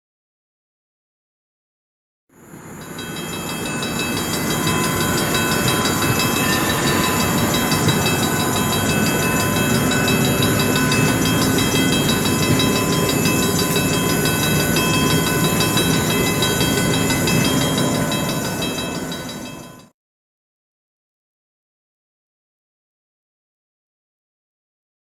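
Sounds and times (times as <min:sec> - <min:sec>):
train cars rumbling and clattering: 0:02.9 - 0:19.8.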